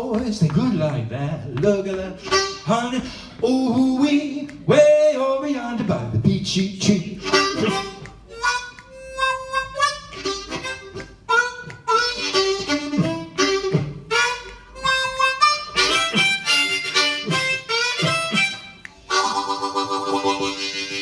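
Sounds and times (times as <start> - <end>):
blues harmonica solo: 2.2 - 3.3, 7.1 - 21.0
live band playing: 7.2 - 21.0.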